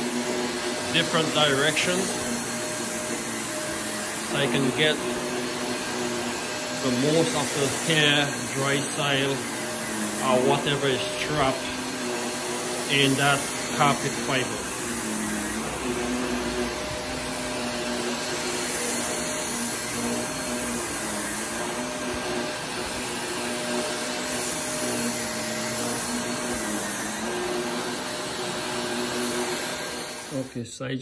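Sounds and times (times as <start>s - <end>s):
vacuum cleaner running: 0.0s - 30.7s.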